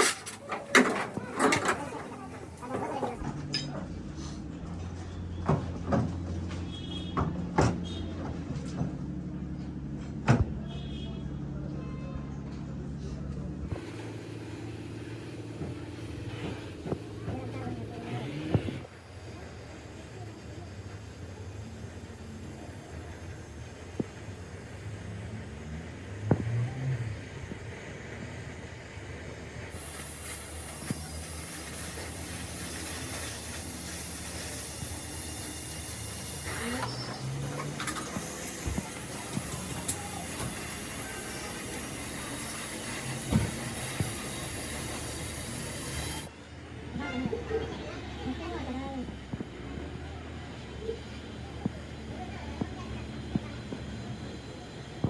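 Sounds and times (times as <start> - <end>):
steady hiss: 29.6 - 46.3.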